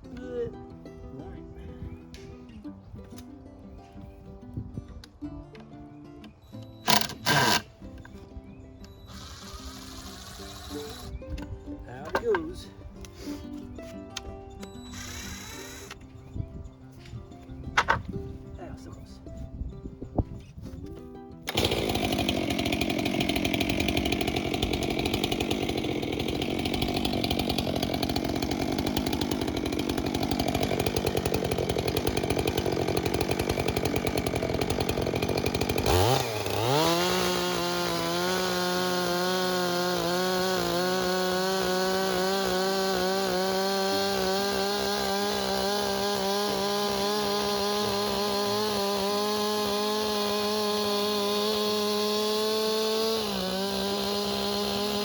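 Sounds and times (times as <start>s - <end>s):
chainsaw cutting log: 6.8s - 8.1s, 8.9s - 11.2s, 14.8s - 16.0s, 21.4s - 55.0s.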